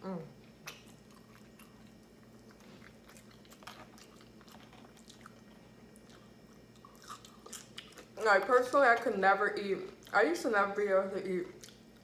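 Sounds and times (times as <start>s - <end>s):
low steady hum: 0.0s - 12.0s
person chewing food: 0.4s - 9.1s, 9.9s - 10.2s, 11.5s - 12.0s.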